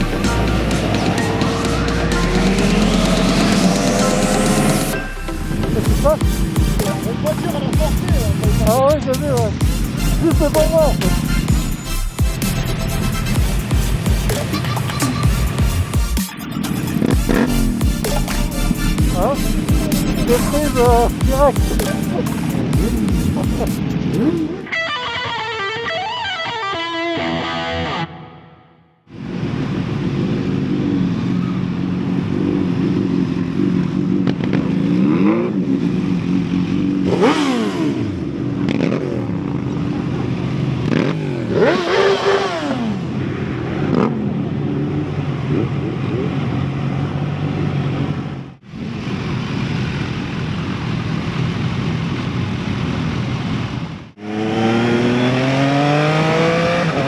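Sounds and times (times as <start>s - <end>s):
motorcycle engines: 0.0s - 26.6s, 29.1s - 57.0s
guitar music: 0.0s - 29.0s.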